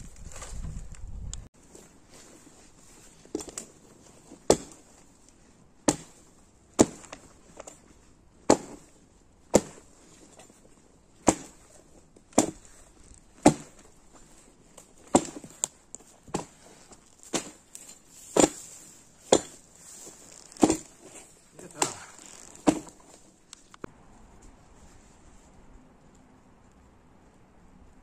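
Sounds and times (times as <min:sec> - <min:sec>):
wood being chopped: 0:04.4 - 0:04.8, 0:05.8 - 0:07.8, 0:08.4 - 0:08.9, 0:09.5 - 0:09.9, 0:11.2 - 0:11.7, 0:12.3 - 0:12.8, 0:13.4 - 0:13.9, 0:14.8 - 0:15.7, 0:16.3 - 0:19.6, 0:20.5 - 0:23.2.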